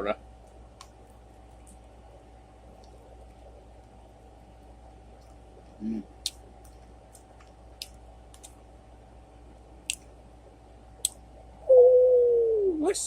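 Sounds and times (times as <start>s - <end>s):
person chewing food: 5.1s - 8.6s
person saying ooh: 11.7s - 13.0s.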